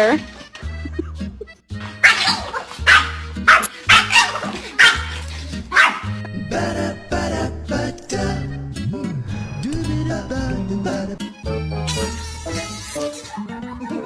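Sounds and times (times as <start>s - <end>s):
background music with bass: 0.0s - 14.0s
dog barking: 2.0s - 6.1s.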